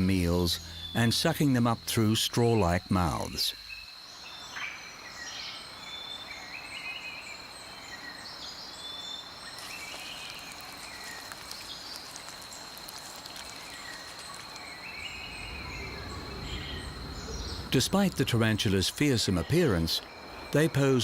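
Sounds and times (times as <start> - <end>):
background hiss: 0.0 - 21.0
high-pitched insect hum: 0.0 - 21.0.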